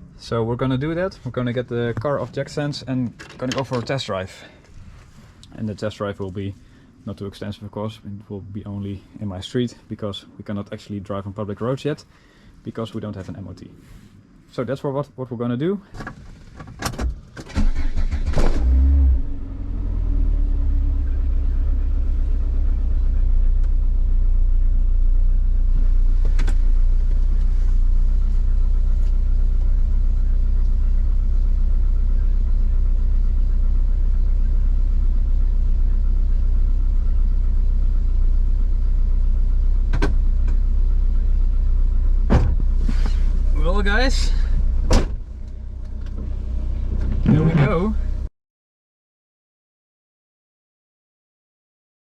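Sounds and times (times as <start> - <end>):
car engine idling: 17.2 - 48.3.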